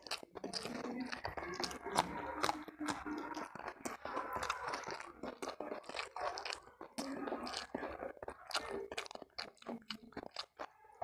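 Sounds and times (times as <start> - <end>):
person chewing crunchy food: 0.0 - 11.0.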